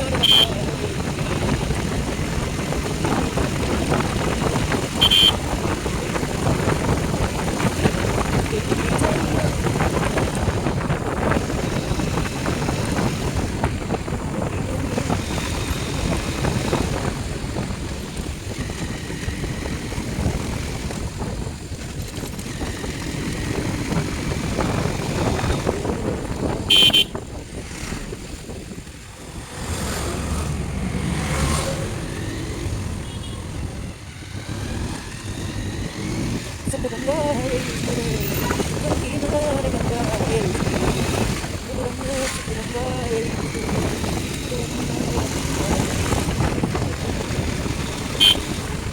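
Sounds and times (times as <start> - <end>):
motorcycle engine: 0.0 - 48.9
wind rushing over microphone: 0.0 - 48.9
vehicle horn blast: 0.1 - 0.8, 4.9 - 5.6, 26.7 - 27.2, 33.0 - 33.6, 48.1 - 48.6.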